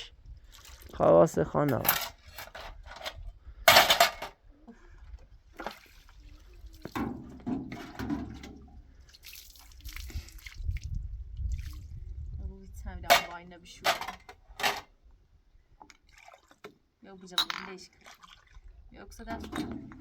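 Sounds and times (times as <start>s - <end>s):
water pouring and splashing: 0.0s - 2.2s, 5.2s - 12.4s, 15.8s - 16.8s, 17.8s - 20.0s.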